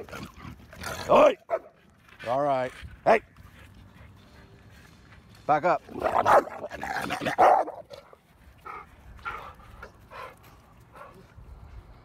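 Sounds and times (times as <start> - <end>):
dogs vocalising during play: 5.9 - 11.2.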